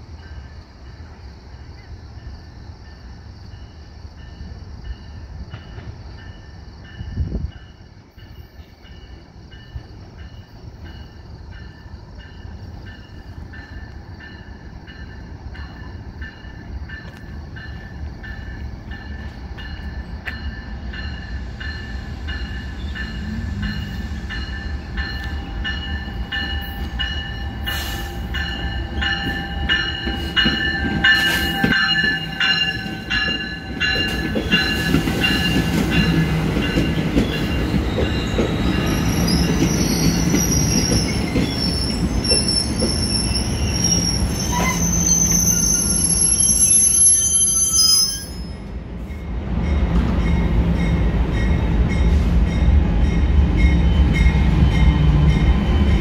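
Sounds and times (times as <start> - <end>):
train rumble approaching: 0.0 - 56.0
high ringing tones: 11.0 - 40.9
wheel and brake screech: 38.0 - 48.6.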